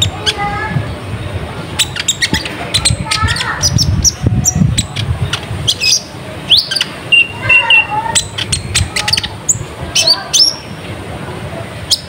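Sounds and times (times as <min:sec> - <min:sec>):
sunbird chips and twittering: 0:01.8 - 0:10.8.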